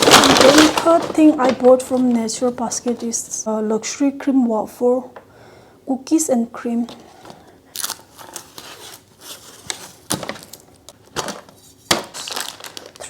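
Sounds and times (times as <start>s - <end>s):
packaging clicks and knocks: 0.0s - 3.2s, 9.7s - 13.0s
packaging rustling: 0.0s - 3.4s, 7.2s - 13.0s.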